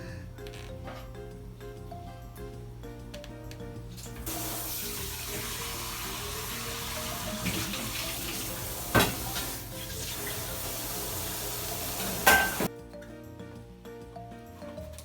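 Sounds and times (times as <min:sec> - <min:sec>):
soft background music: 0:00.0 - 0:15.0
kitchen hiss: 0:04.2 - 0:12.7
dishware clattering: 0:08.9 - 0:09.6, 0:12.0 - 0:12.7.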